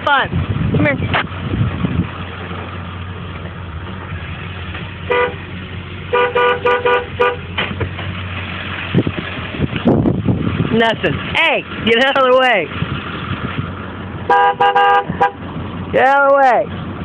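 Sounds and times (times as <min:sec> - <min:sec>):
truck horn honking: 0:05.0 - 0:07.6, 0:14.2 - 0:15.5.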